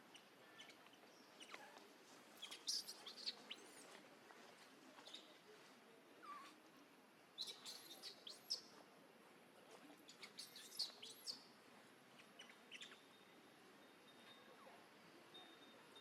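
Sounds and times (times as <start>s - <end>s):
small birds chirping: 0.0s - 1.8s, 2.4s - 3.8s, 5.0s - 5.4s, 7.4s - 8.8s, 10.0s - 13.4s.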